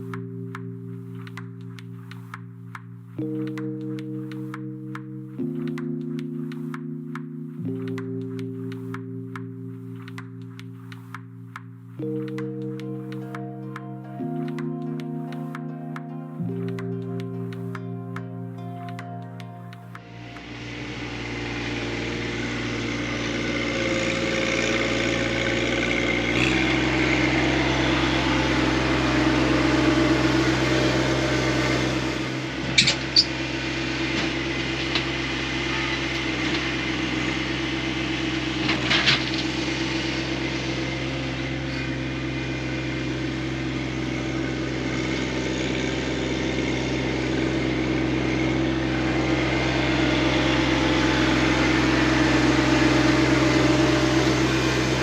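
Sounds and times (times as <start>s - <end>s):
tractor diesel engine running: 12.0s - 55.0s.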